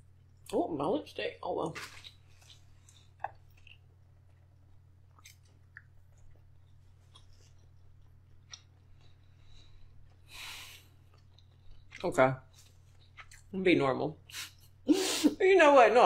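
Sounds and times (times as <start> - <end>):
steady low hum: 0.0 - 15.6
quiet chewing: 1.8 - 13.5.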